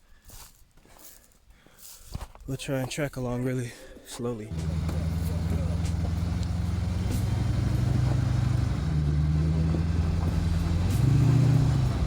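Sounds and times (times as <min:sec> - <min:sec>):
off-road vehicle engine at low revs: 0:04.5 - 0:12.0.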